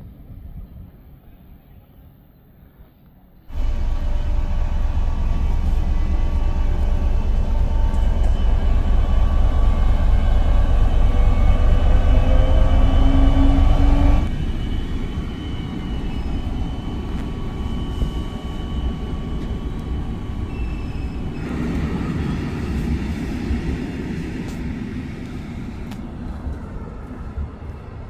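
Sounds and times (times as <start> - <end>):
steady tones: 3.5 - 20.5
moving vehicle rumble: 3.5 - 28.0.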